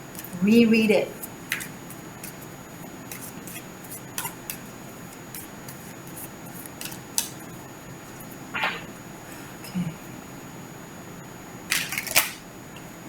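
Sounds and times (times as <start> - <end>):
cards being shuffled: 1.2 - 2.5, 3.1 - 7.4, 11.7 - 12.4.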